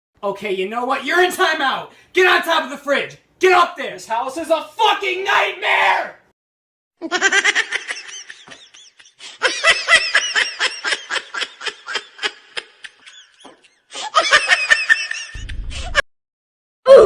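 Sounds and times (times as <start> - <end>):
person laughing hard: 7.0 - 16.0.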